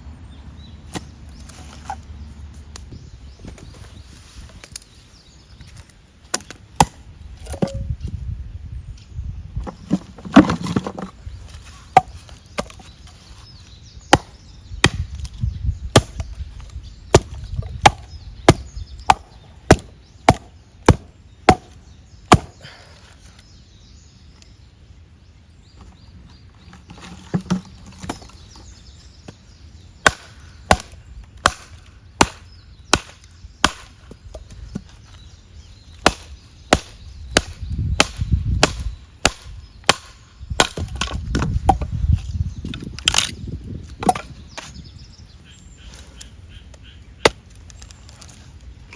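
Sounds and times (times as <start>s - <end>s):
firewood being chopped: 6.3s - 7.8s, 11.9s - 12.9s, 14.1s - 16.4s, 17.1s - 22.7s, 30.0s - 35.0s, 36.0s - 42.2s, 42.8s - 43.4s, 44.0s - 44.8s.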